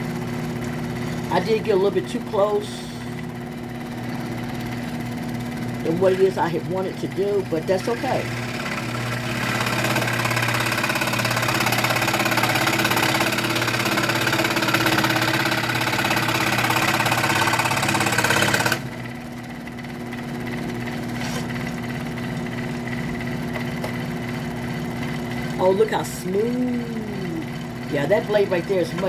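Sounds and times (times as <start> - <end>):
scroll saw motor buzzing: 4.1 - 19.0, 20.5 - 25.5
saw blade rasping through wood: 7.8 - 18.8, 21.1 - 21.6.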